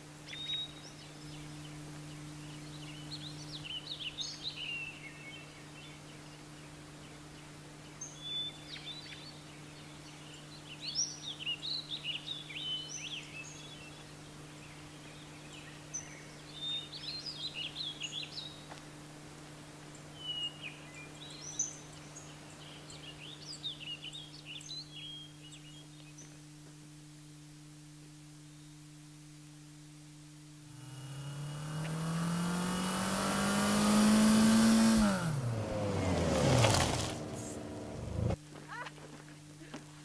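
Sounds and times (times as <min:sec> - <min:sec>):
steady low hum: 0:00.0 - 0:10.4, 0:24.2 - 0:38.6
songbird warbling chirps: 0:00.2 - 0:07.2, 0:20.0 - 0:26.4.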